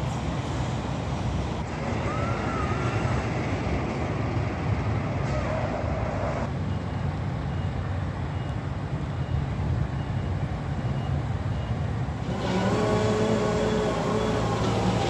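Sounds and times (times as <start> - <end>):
diesel machinery rumble: 8.9 - 15.0
pitched machine tones: 12.2 - 15.0.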